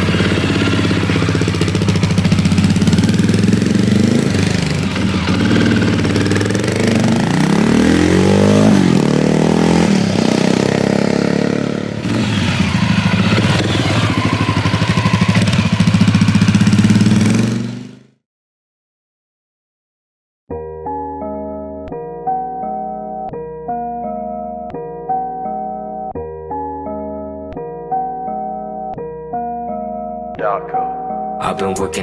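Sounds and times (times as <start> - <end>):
motorcycle engine idling and revving: 0.0 - 18.2.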